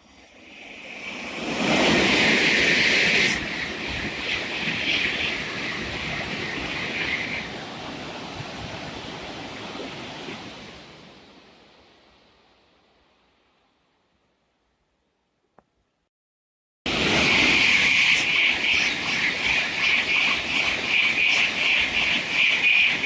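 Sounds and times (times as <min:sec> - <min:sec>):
high-speed train rushing past: 0:00.0 - 0:11.2, 0:16.9 - 0:23.0.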